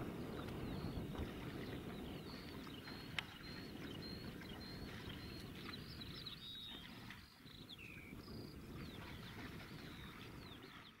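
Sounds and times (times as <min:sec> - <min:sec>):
birds whistling and chirping: 0:00.2 - 0:11.0.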